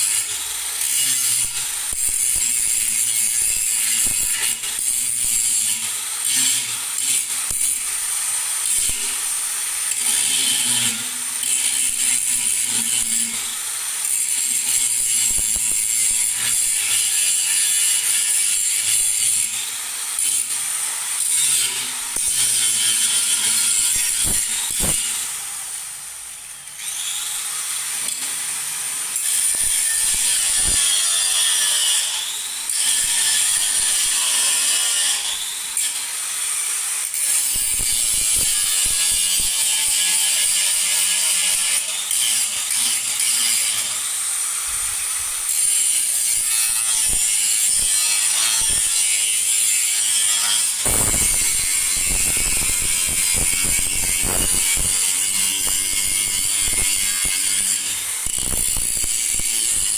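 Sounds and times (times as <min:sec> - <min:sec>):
tool rasping on metal: 0:21.2 - 0:25.4, 0:29.2 - 0:35.5, 0:44.6 - 0:59.9.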